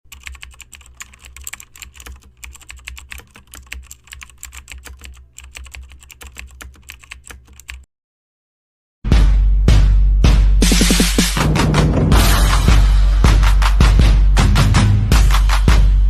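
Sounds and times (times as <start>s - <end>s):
typing on a keyboard: 0.1s - 7.9s.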